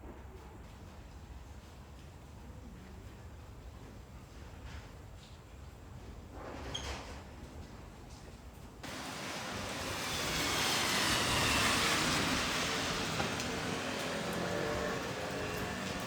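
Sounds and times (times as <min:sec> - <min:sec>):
train wheel and rail noise: 0:08.8 - 0:16.0.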